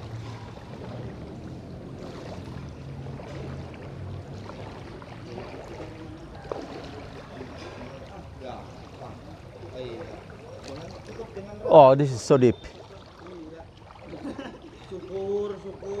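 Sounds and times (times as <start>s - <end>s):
floodwater sloshing and splashing: 0.0s - 16.0s.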